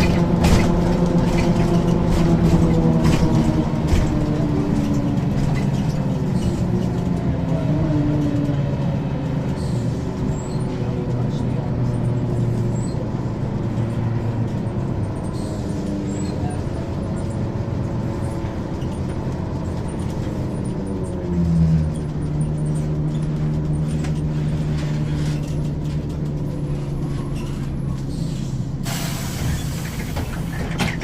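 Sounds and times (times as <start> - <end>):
bus diesel engine drone: 0.0 - 31.0
compressed air hiss: 28.3 - 30.0.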